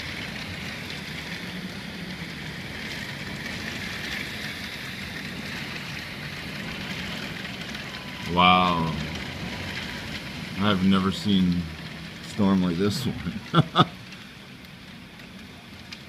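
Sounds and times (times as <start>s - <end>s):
heavy hail and rain: 0.0s - 16.0s.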